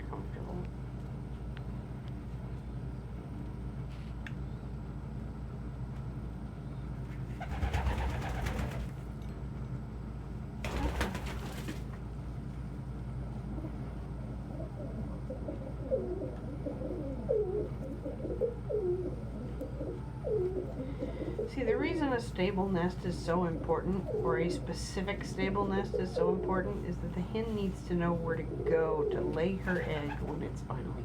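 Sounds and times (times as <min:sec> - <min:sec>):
steady low hum: 0:00.0 - 0:31.0
pigeons cooing: 0:07.3 - 0:08.9, 0:13.4 - 0:22.3, 0:22.9 - 0:27.2, 0:28.1 - 0:30.6.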